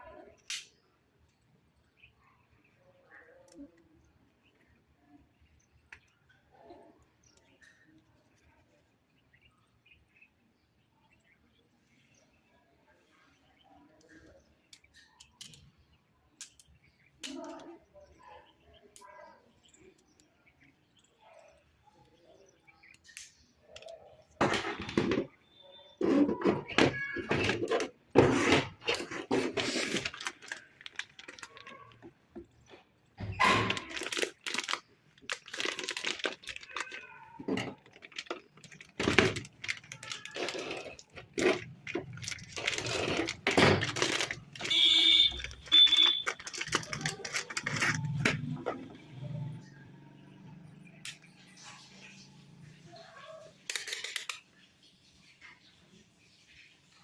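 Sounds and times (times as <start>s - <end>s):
plastic packaging rustling: 26.0s - 32.5s, 33.4s - 48.4s.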